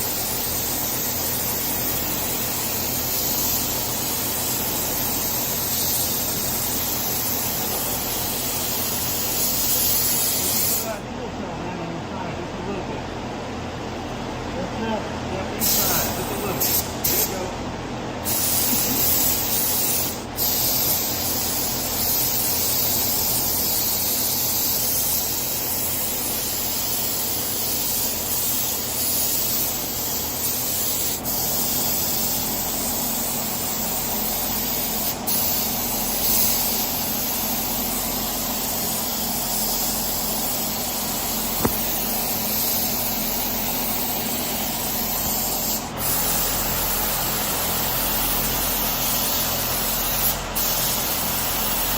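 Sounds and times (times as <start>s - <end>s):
paint spray gun hissing: 0.0s - 11.0s, 15.6s - 17.4s, 18.2s - 51.9s.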